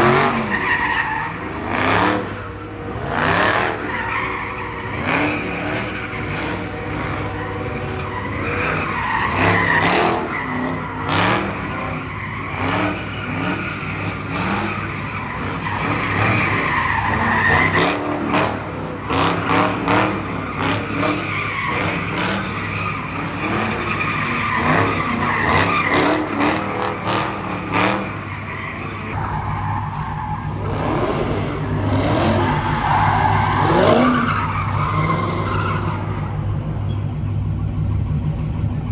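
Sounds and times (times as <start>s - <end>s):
engine drone: 0.0s - 29.3s
car tyres squealing: 0.0s - 37.4s.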